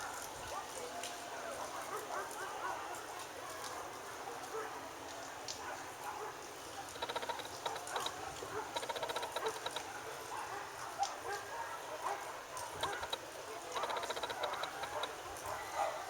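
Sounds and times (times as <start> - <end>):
trilling animal calls: 6.9 - 9.9, 12.8 - 13.2, 13.8 - 15.2.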